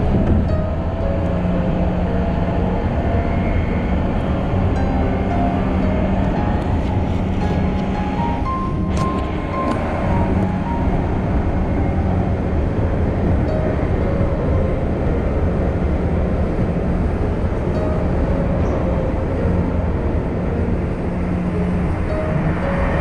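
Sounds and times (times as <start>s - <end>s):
low even hum: 0.0s - 23.0s
train wheels rumbling on rails: 0.0s - 23.0s.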